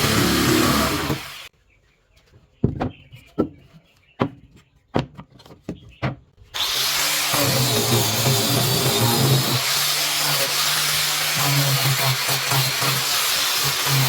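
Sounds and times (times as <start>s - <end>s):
woodworking power tool running: 0.0s - 1.5s, 6.6s - 14.0s.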